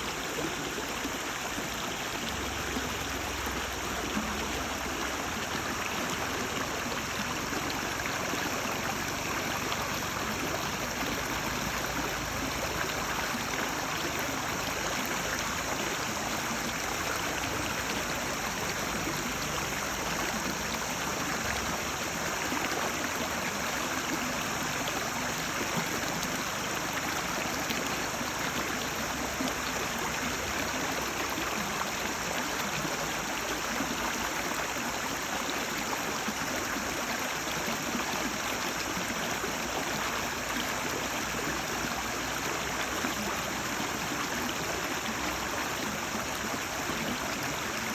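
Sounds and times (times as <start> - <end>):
stream water babbling: 0.0 - 47.9.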